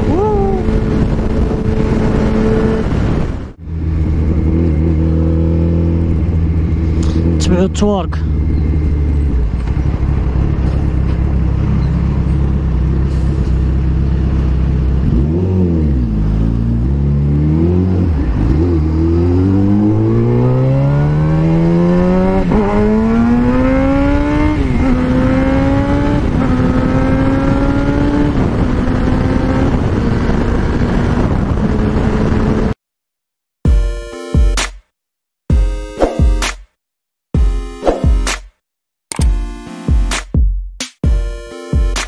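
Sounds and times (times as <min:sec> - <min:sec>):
motorcycle engine accelerating: 0:00.0 - 0:32.8.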